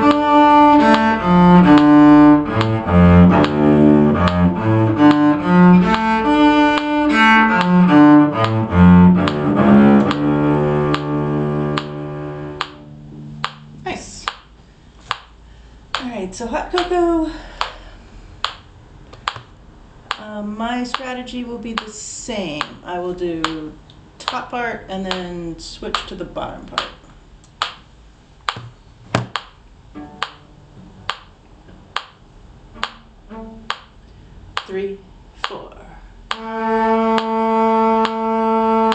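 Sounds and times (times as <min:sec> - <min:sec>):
cello playing bowed melody: 0:00.0 - 0:14.0, 0:29.8 - 0:31.2, 0:31.8 - 0:34.2, 0:36.3 - 0:38.9
metronome ticking: 0:00.0 - 0:27.9, 0:29.3 - 0:32.2, 0:32.8 - 0:38.9
sharp regular click: 0:18.4 - 0:20.2.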